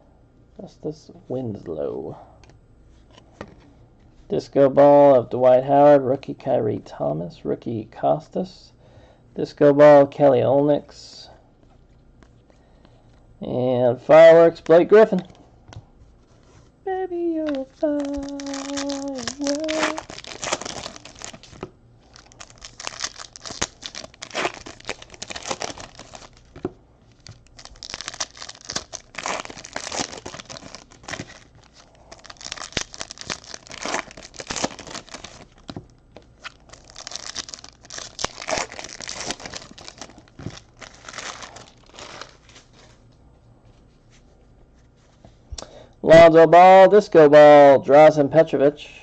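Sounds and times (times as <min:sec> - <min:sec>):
card pack wrappers crinkling and tearing: 0:17.3 - 0:42.9.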